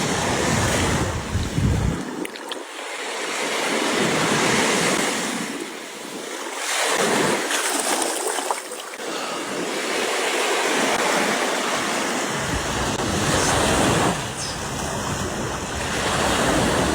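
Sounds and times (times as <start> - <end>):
ocean surf washing on beach: 0.0 - 2.2, 2.8 - 16.9
wind rumbling on microphone: 0.0 - 2.2, 12.1 - 16.9.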